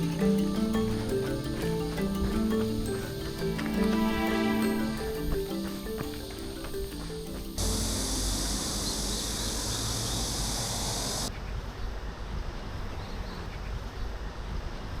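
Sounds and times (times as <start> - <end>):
steady high hiss: 0.0 - 11.3.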